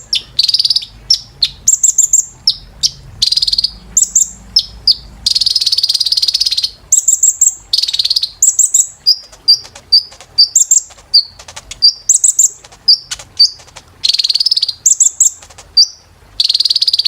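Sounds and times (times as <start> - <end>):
bird singing chirps and trills: 0.0 - 17.0.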